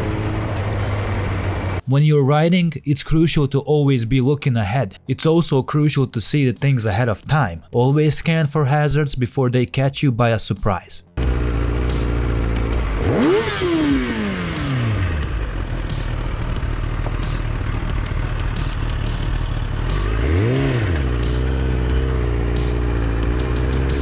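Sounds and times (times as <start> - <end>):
motorcycle engine revving: 0.0 - 1.8, 11.2 - 24.0.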